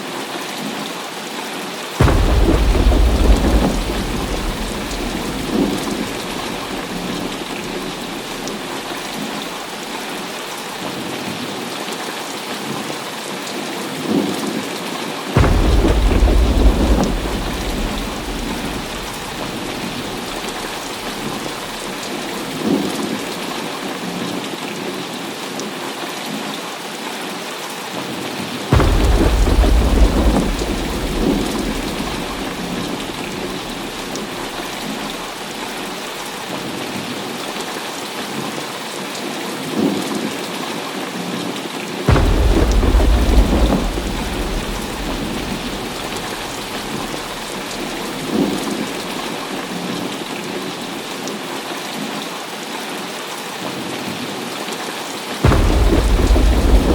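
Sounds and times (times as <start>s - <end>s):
heavy rain falling: 0.0s - 56.9s
loud deep thunderclaps: 2.0s - 10.2s, 15.4s - 23.5s, 28.7s - 36.4s, 42.1s - 50.4s, 55.4s - 56.9s
rolling thunder: 2.0s - 10.2s, 15.4s - 23.5s, 28.7s - 36.4s, 42.1s - 50.4s, 55.4s - 56.9s.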